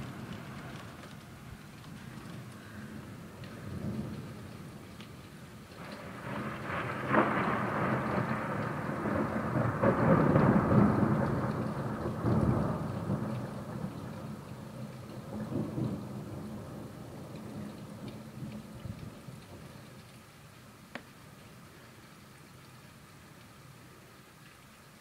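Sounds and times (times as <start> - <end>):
thunder rolling: 0.0 - 5.0, 5.8 - 19.8
steady rain: 0.0 - 25.0.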